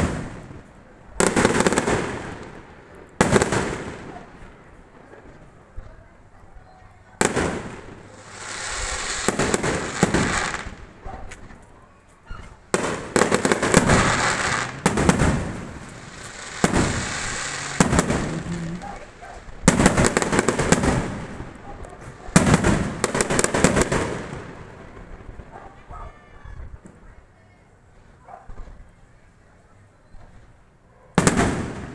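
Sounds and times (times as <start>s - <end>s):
fireworks bangs: 0.0s - 5.4s, 7.2s - 11.6s, 12.4s - 25.6s, 31.2s - 31.9s
fireworks crackling fizz: 7.3s - 11.5s, 12.6s - 21.6s.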